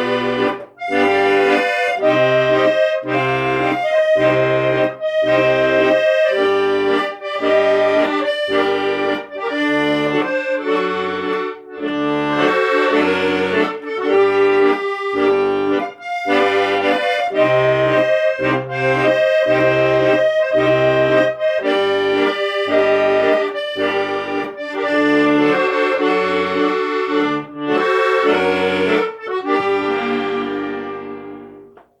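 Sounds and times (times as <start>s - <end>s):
accordion music: 0.0s - 32.0s.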